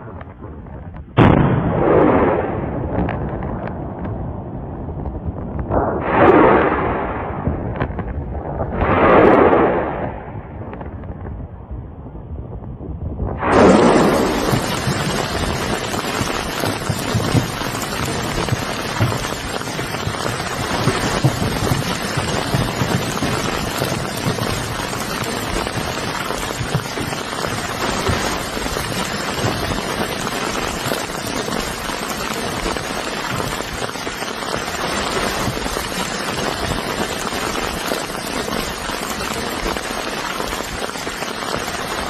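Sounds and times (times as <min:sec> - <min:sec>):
rain-like hiss with pattering: 0:13.4 - 0:42.0.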